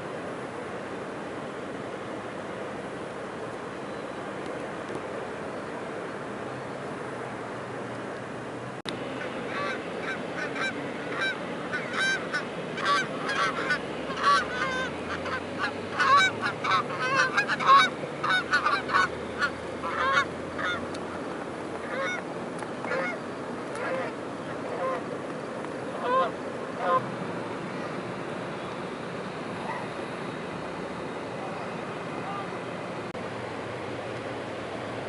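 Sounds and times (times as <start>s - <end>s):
steady background hiss: 0.0s - 35.0s
geese honking: 9.2s - 25.2s, 25.8s - 32.6s.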